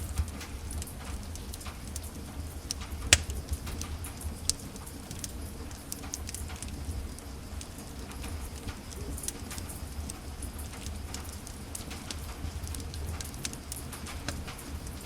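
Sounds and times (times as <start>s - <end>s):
wood fire crackling: 0.0s - 15.0s
loud sharp pop of fire: 3.1s - 3.6s.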